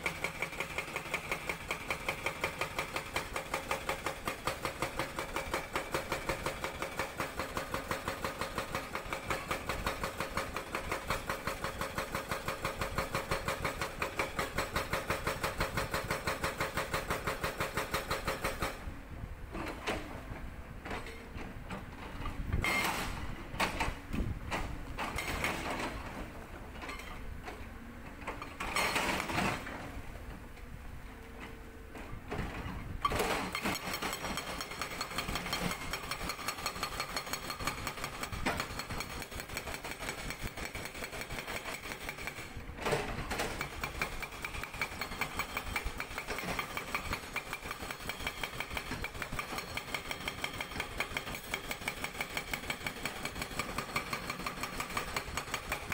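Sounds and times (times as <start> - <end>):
excavator engine and hydraulics: 0.0 - 55.9
hydraulic rock breaker hammering: 32.4 - 55.9.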